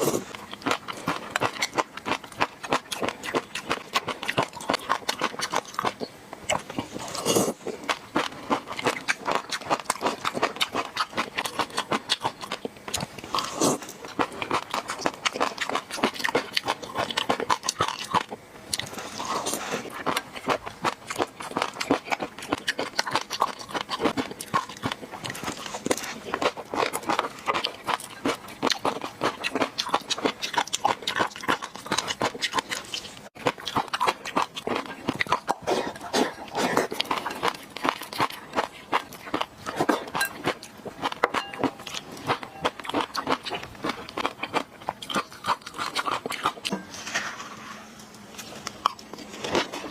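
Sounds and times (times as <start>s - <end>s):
close chewing and mouth sounds: 0.0s - 46.7s, 48.1s - 49.9s.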